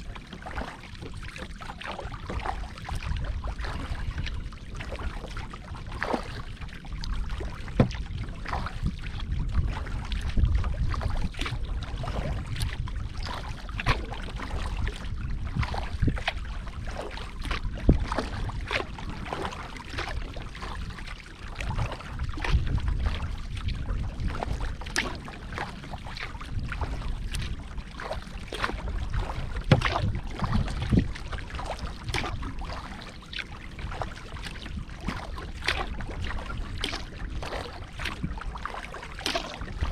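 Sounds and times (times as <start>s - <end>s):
paddle taps and small splashes: 0.0s - 39.9s
wind rumble on microphone: 0.0s - 39.9s
knocks on kayak: 7.8s - 8.0s, 29.7s - 30.0s.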